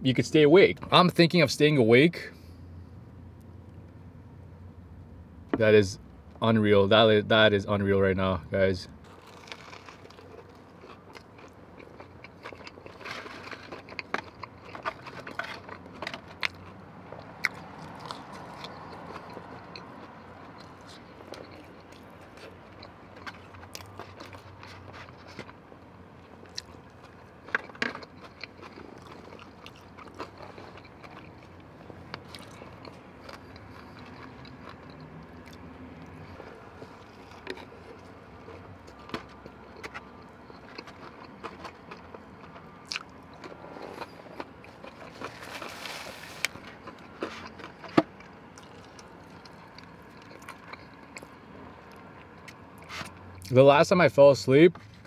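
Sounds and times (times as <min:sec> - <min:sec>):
person chewing food: 0:09.0 - 0:25.6, 0:26.2 - 0:53.5
food crunching: 0:09.0 - 0:53.5.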